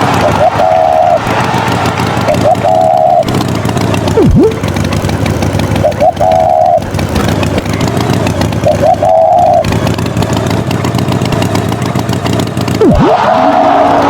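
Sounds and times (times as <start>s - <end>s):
short tone with chirp: 0.0s - 1.3s, 2.3s - 3.3s, 5.8s - 6.9s, 8.6s - 9.7s
engine running: 0.0s - 14.0s.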